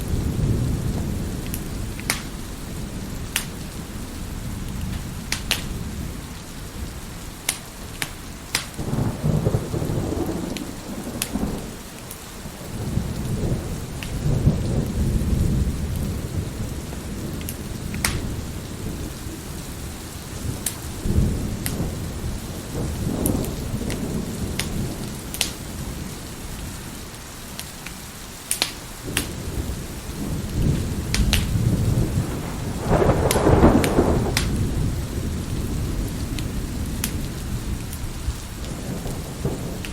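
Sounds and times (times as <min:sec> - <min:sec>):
rolling thunder: 0:00.0 - 0:27.0, 0:29.0 - 0:39.9
steady rain: 0:00.0 - 0:39.9
wood fire crackling and popping: 0:00.9 - 0:02.6, 0:03.2 - 0:03.8, 0:04.6 - 0:05.8, 0:07.4 - 0:08.9, 0:10.2 - 0:12.2, 0:14.0 - 0:14.2, 0:16.9 - 0:18.5, 0:20.6 - 0:21.9, 0:23.2 - 0:25.6, 0:27.5 - 0:29.4, 0:30.4 - 0:39.9.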